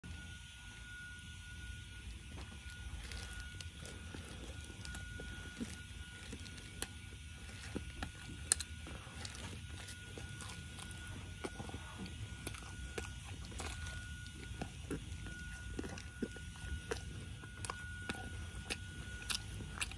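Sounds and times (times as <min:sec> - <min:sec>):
chewing with wet mouth clicks: 0:02.3 - 0:19.9.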